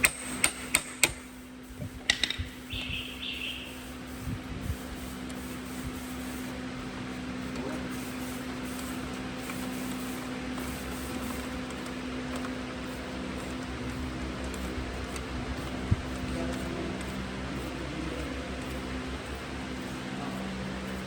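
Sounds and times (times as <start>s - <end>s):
mechanical hum: 0.0s - 21.0s
steady hiss: 0.0s - 21.0s.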